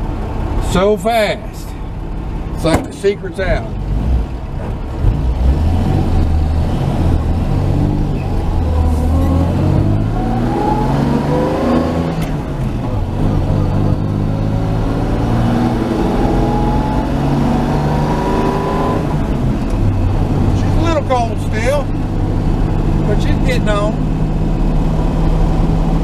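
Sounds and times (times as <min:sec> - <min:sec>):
truck engine accelerating: 0:00.0 - 0:26.0.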